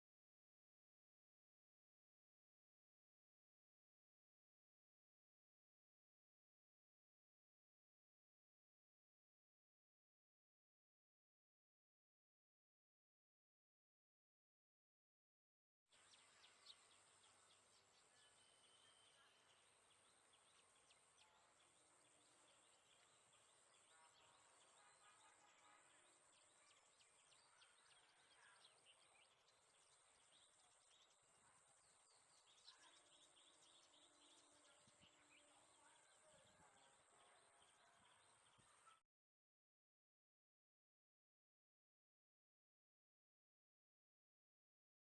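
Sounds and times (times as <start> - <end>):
bird chirps: 15.9 - 39.0.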